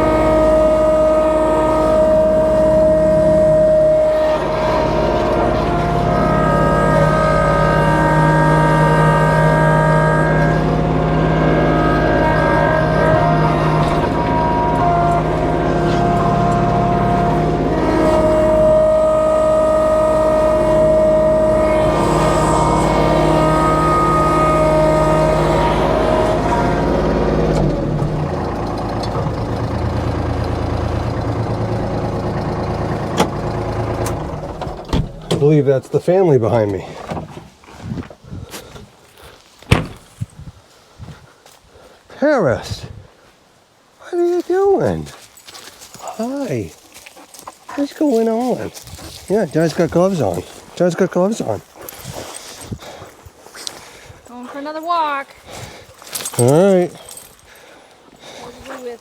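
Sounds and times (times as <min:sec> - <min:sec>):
steady whine: 0:00.0 - 0:35.5
tractor diesel engine running: 0:00.0 - 0:37.6, 0:39.7 - 0:40.3, 0:44.6 - 0:59.0.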